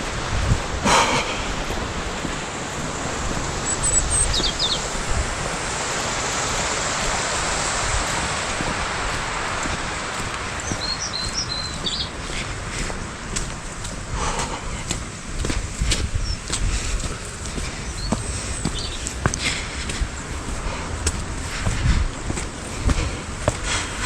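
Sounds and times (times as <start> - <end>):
wind rushing across microphone: 0.0 - 24.0
small bird chirping: 3.6 - 4.9, 10.6 - 12.2, 17.8 - 19.1.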